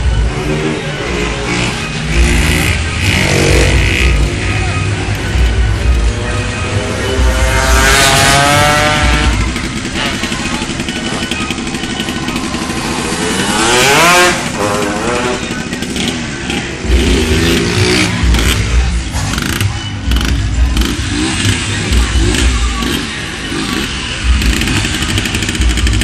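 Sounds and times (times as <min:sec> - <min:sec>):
motorcycles racing past: 0:06.0 - 0:10.9, 0:12.5 - 0:19.5.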